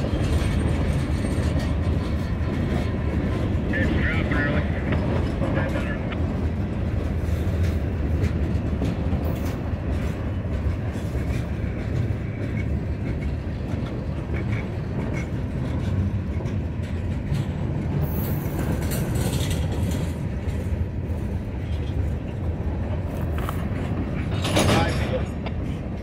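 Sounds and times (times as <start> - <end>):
train wheels rumbling on rail: 0.0 - 26.0
clicks and clanks: 18.3 - 20.7, 23.2 - 26.0.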